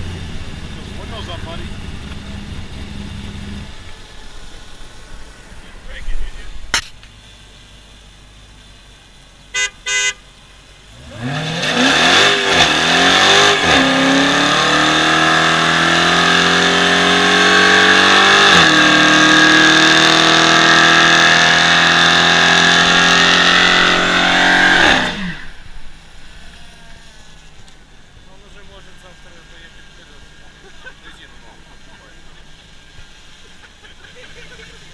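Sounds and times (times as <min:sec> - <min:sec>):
car engine revving high: 0:00.0 - 0:05.8, 0:10.9 - 0:31.3
car horn beeps: 0:09.5 - 0:10.2.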